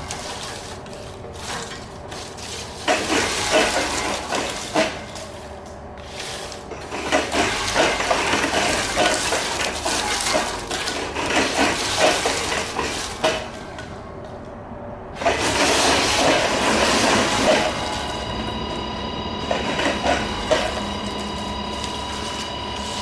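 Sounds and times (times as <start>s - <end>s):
metal parts clattering and clicking: 0.0s - 13.9s.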